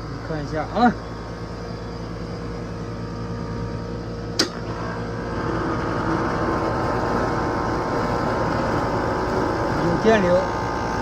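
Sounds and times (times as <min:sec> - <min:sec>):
air conditioner unit humming: 0:00.0 - 0:11.0
sharp click: 0:04.4 - 0:04.6.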